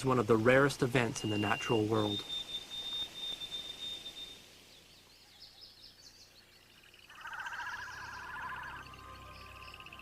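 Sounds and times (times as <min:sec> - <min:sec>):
rapid trilling birdsong: 0:00.0 - 0:10.0
faint high bird chirps: 0:00.9 - 0:10.0.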